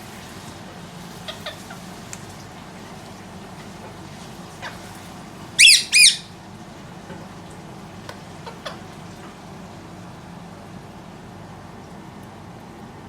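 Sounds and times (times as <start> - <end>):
parakeet squawks: 1.2 - 1.9, 5.6 - 6.4
faint short bird calls: 5.6 - 6.3.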